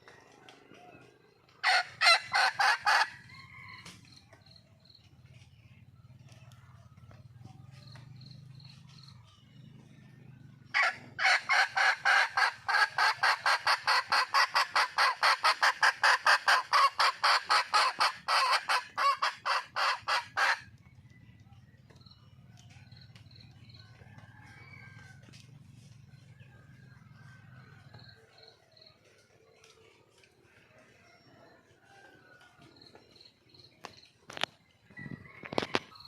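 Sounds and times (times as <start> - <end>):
hen cackling: 1.6 - 3.3, 10.7 - 20.7.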